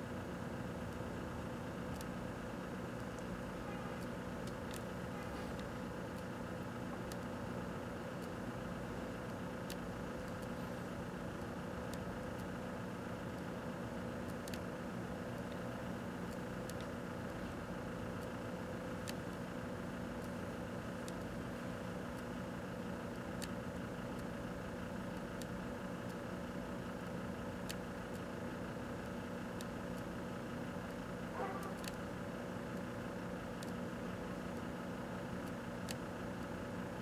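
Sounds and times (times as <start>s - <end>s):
microwave oven humming: 0.0s - 37.0s
sharp clicks: 4.0s - 8.4s, 14.2s - 14.7s, 15.3s - 17.0s, 23.1s - 24.4s, 30.8s - 32.9s, 33.5s - 33.9s.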